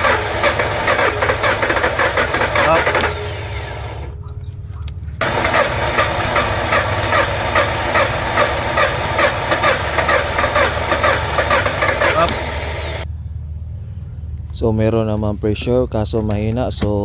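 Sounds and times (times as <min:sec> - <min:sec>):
car engine running: 0:00.0 - 0:13.1
regular engine ticking: 0:00.0 - 0:13.1.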